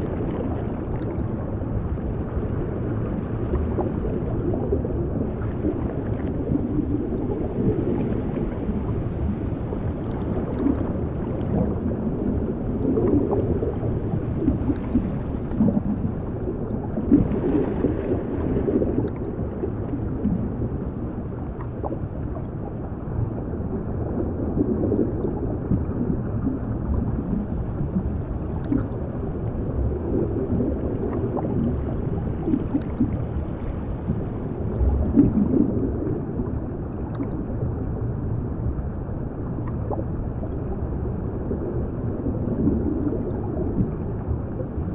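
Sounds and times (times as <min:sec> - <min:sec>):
muffled underwater rumble: 0:00.0 - 0:44.9
water bubbling and gurgling: 0:00.0 - 0:44.9.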